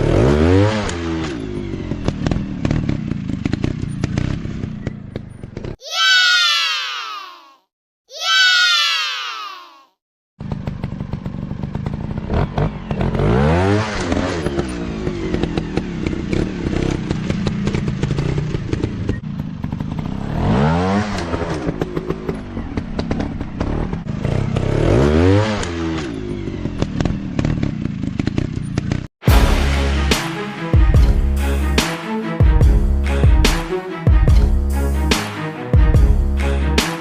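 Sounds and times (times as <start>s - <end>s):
dirt bike engine revving: 0.0s - 4.8s, 10.5s - 30.0s.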